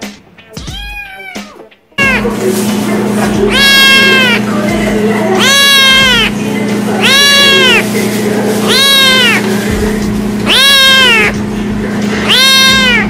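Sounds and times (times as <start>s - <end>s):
kitten meowing: 0.6s - 2.2s, 3.5s - 4.4s, 5.4s - 6.3s, 7.0s - 7.9s, 8.6s - 9.5s, 10.4s - 11.4s, 12.2s - 13.0s.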